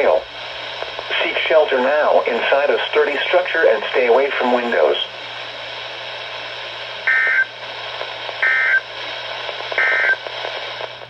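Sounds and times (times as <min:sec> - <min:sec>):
radio receiver hiss: 0:00.0 - 0:11.0
digital data tone bursts: 0:09.8 - 0:10.2.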